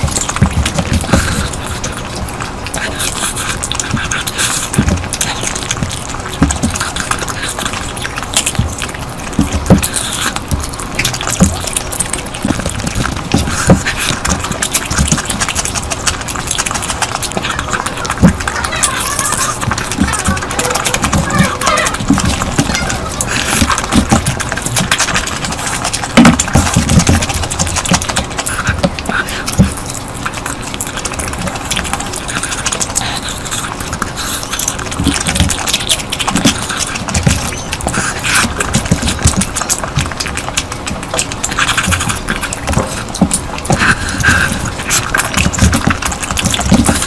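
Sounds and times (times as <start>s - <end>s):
chewing and lip-smacking: 0.0s - 47.0s.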